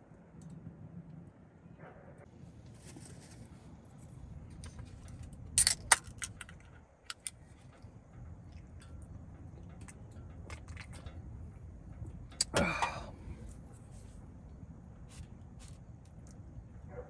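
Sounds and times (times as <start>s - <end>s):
low steady rumble: 0.0s - 17.0s
small hard objects clicking: 4.6s - 7.8s.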